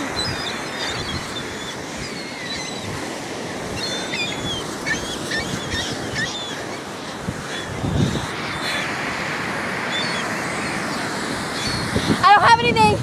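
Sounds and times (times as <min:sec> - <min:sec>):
birds chirping: 0:00.0 - 0:12.6.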